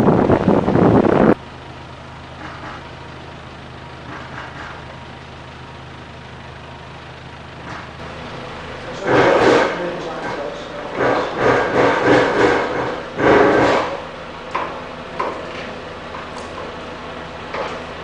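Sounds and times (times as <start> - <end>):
wind buffeting microphone: 0.0 - 1.4
large vehicle engine idling: 0.0 - 18.0.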